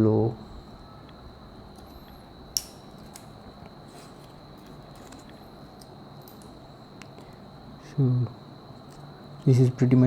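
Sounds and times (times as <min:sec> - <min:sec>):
faint high-pitched tone: 0:00.0 - 0:02.1.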